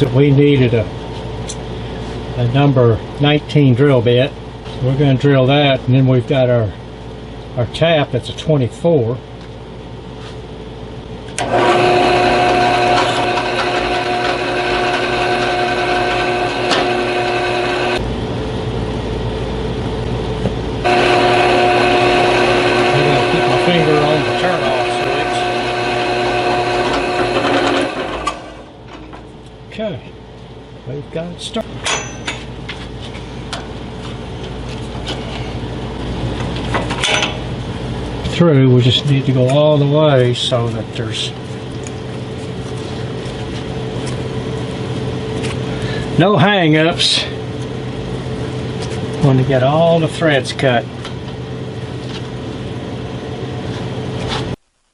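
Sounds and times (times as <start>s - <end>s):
steady low hum: 0.0s - 54.9s
electric drill drilling steel: 11.4s - 18.0s, 20.9s - 28.7s.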